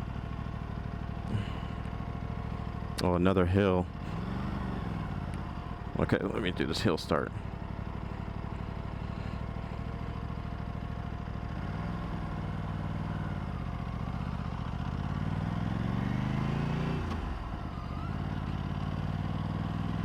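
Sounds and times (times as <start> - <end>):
motorcycle engine revving: 3.6 - 6.7, 7.4 - 20.0.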